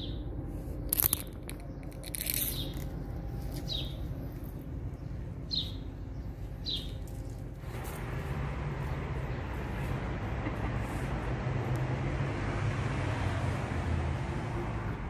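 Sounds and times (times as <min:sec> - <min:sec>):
bird chirping: 0:00.0 - 0:07.5
steady low rumble: 0:00.0 - 0:12.5.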